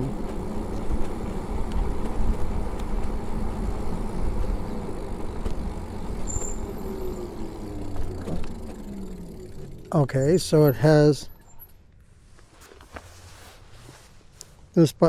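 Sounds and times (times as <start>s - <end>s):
wind buffeting microphone: 0.0s - 9.8s
tyre noise: 0.0s - 11.6s
electric motor whine: 0.0s - 11.7s.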